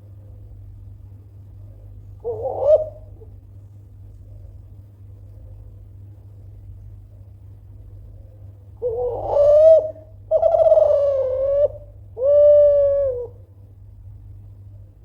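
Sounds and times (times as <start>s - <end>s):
dove cooing: 2.2s - 3.4s, 8.8s - 13.4s.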